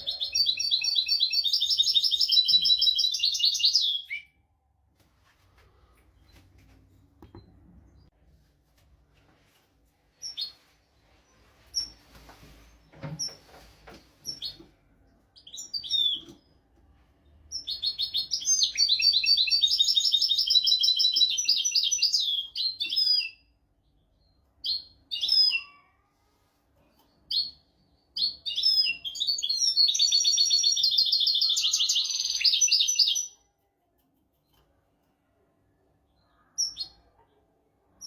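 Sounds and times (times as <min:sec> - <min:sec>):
bird chirps: 0:00.0 - 0:04.4, 0:15.4 - 0:16.6, 0:17.5 - 0:25.9, 0:27.0 - 0:33.4, 0:36.1 - 0:37.4.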